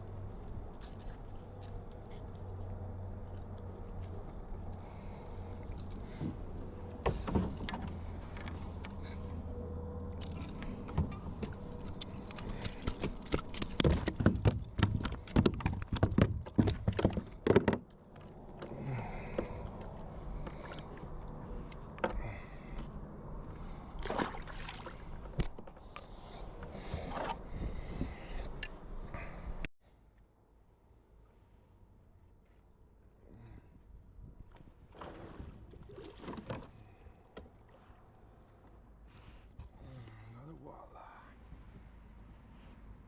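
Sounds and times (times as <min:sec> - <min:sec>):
knocks and clatters: 0:10.2 - 0:18.0
water sloshing against kayak hull: 0:24.0 - 0:26.0.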